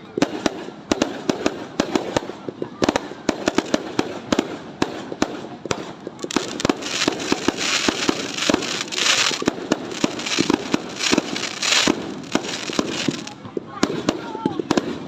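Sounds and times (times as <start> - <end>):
fireworks bangs: 4.9 - 15.0
fireworks crackling hiss: 5.8 - 13.4.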